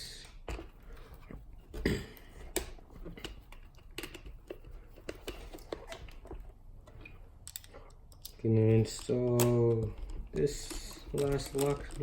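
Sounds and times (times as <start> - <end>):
hands clicking plastic parts: 2.4 - 12.0.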